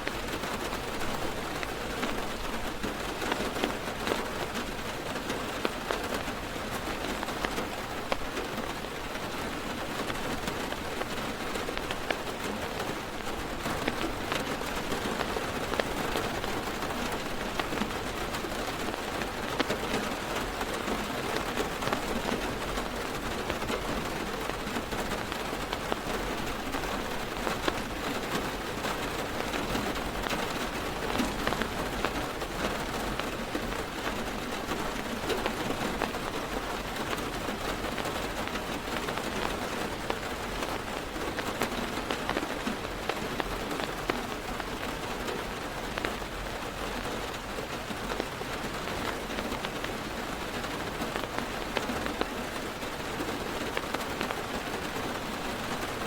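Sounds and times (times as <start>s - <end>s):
heavy rain on car roof: 0.0s - 56.0s
raindrops ticking: 0.0s - 56.0s.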